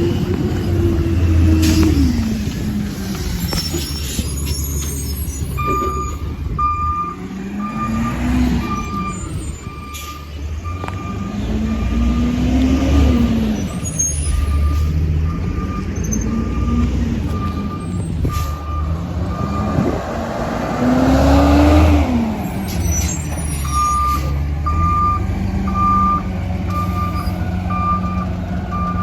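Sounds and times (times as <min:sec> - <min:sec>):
truck engine revving: 0:00.0 - 0:29.0
reversing alarm beeping: 0:03.4 - 0:19.9, 0:22.6 - 0:29.0.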